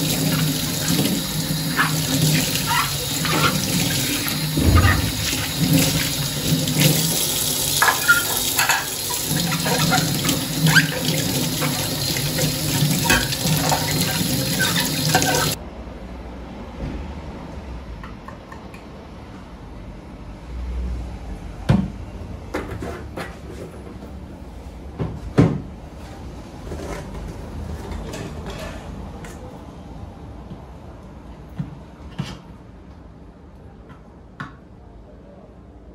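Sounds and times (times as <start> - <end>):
tap water running into sink: 0.0 - 15.6.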